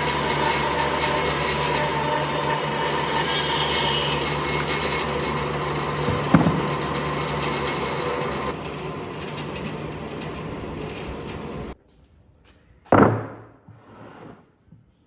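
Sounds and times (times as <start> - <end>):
power tool running: 0.0 - 11.8
sharp knock: 6.1 - 6.7.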